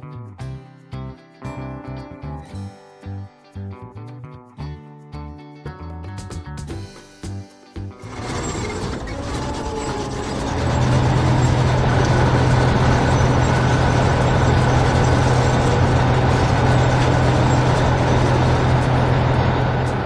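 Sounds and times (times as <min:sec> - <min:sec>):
heavy vehicle engine running: 0:08.1 - 0:20.0.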